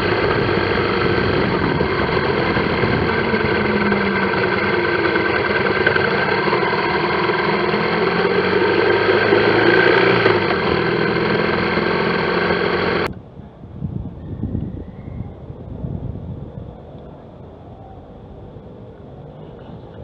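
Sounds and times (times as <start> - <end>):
motorcycle engine running: 0.0 - 13.1
road and wind noise: 0.0 - 20.0.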